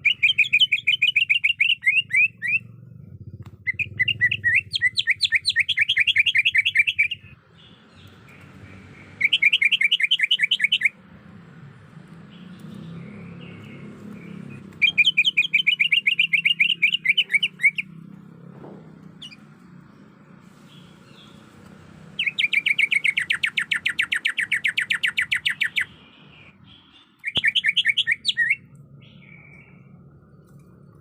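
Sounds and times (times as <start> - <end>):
bird chattering call: 3.5 - 7.3, 14.3 - 17.9, 22.2 - 28.7.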